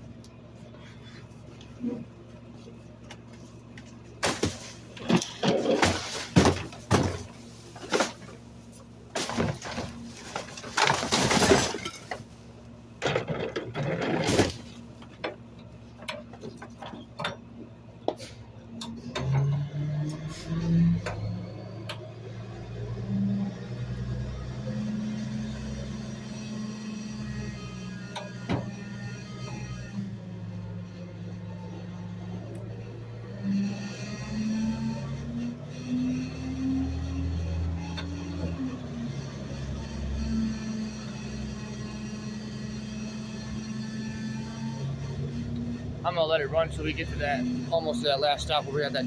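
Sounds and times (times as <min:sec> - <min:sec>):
garbage truck engine hum: 0:00.0 - 0:49.0
refuse crashing into garbage truck: 0:04.2 - 0:08.4, 0:09.1 - 0:12.3, 0:13.0 - 0:15.2.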